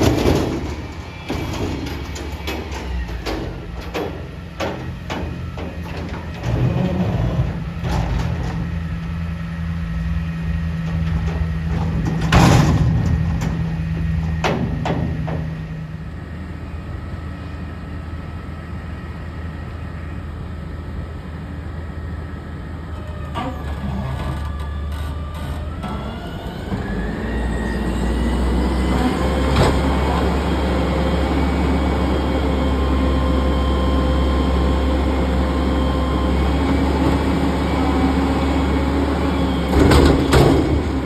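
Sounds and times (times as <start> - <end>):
metal knocks and clanks: 0.0 - 8.8, 10.8 - 16.0, 39.7 - 41.0
garbage truck engine running: 0.0 - 41.0.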